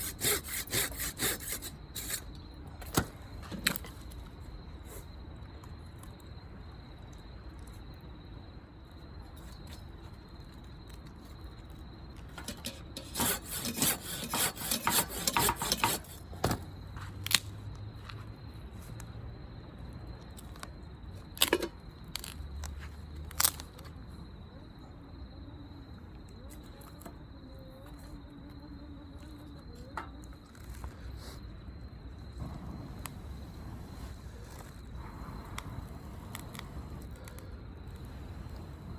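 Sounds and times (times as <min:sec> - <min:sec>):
insect trill: 0:00.0 - 0:38.9
scraping and rubbing: 0:12.5 - 0:16.3.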